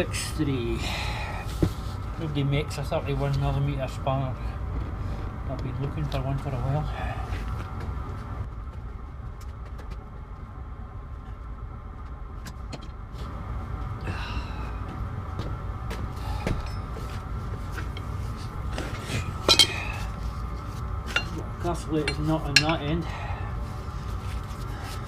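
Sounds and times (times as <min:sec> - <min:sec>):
workshop rumble: 0:00.0 - 0:08.5, 0:13.0 - 0:25.0
sharp metallic clank: 0:19.3 - 0:20.0, 0:22.0 - 0:22.9.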